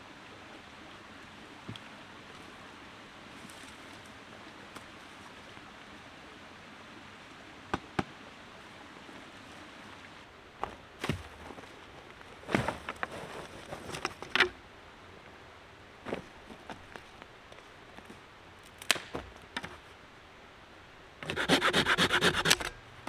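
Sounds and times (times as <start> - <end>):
outdoor background hiss: 0.0 - 23.0
knocks and clatter of handling: 10.6 - 14.7, 16.0 - 20.0.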